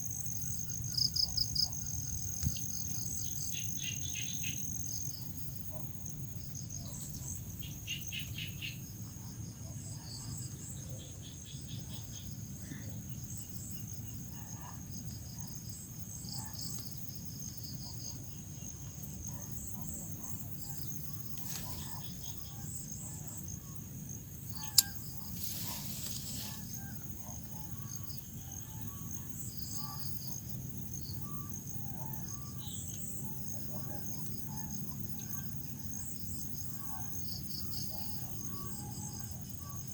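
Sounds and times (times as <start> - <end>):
crickets chirping: 0.0 - 39.9
sharp click: 24.6 - 25.0.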